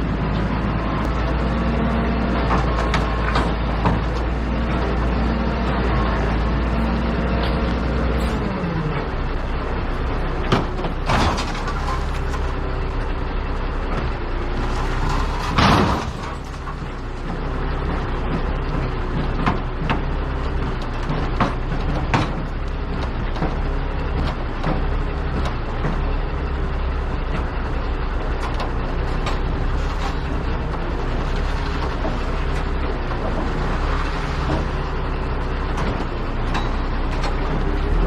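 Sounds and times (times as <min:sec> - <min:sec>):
truck engine running: 0:00.0 - 0:38.0
knocks and rattles: 0:02.4 - 0:04.8.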